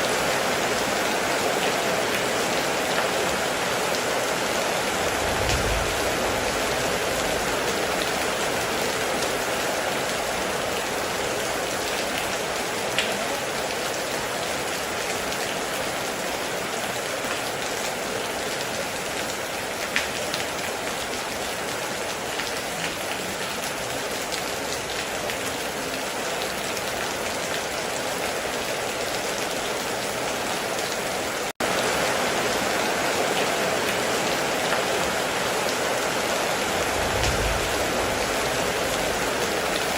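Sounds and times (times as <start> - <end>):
heavy rain falling: 0.0 - 39.9
single loud raindrops: 4.8 - 8.3, 36.8 - 39.8.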